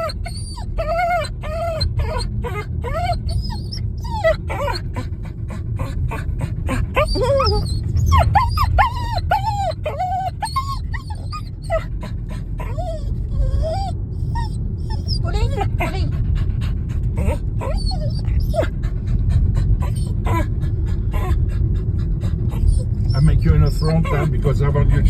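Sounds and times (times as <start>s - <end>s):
dog whining and yipping: 0.0s - 25.0s.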